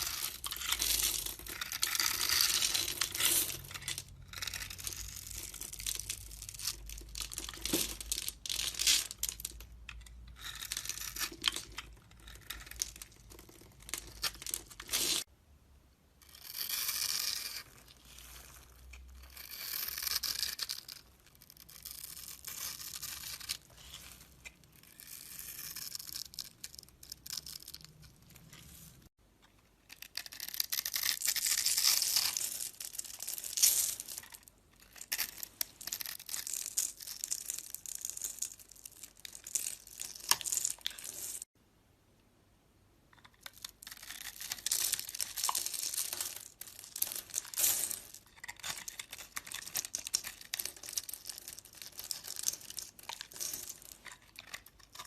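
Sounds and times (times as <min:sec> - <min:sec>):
blade scraping soap: 0:00.0 - 0:05.6, 0:16.2 - 0:27.6
crisp crackles and clicks: 0:43.1 - 0:55.0.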